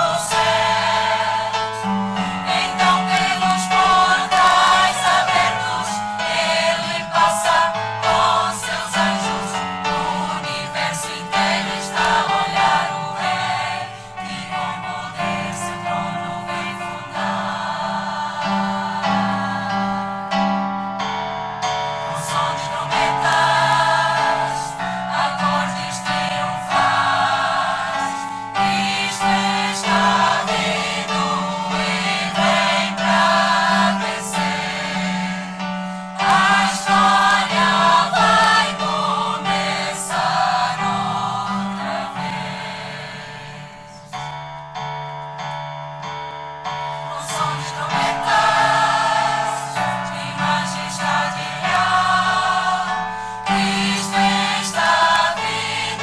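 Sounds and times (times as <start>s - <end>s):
choir singing a hymn: 0.0s - 44.4s, 46.8s - 56.0s.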